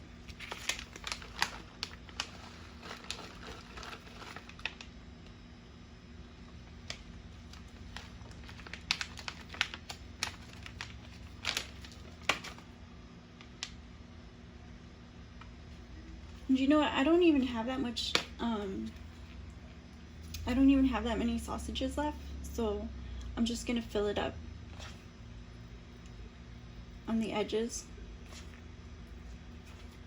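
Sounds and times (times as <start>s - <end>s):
plastic bag crinkling: 0.0s - 4.9s, 6.6s - 12.8s, 28.3s - 30.0s.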